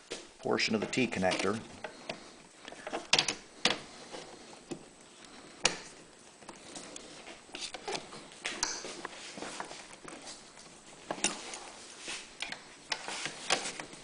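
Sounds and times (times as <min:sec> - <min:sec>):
hose handling clicks and knocks: 0:00.7 - 0:04.9, 0:12.4 - 0:14.0.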